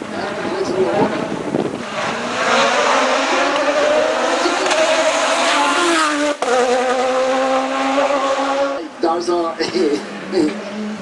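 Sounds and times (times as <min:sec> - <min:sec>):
race car engine accelerating: 0:00.3 - 0:09.0.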